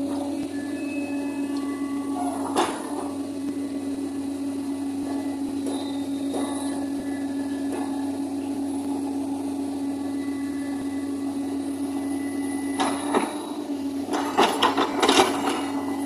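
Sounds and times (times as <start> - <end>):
excavator engine hum: 0.0 - 16.0.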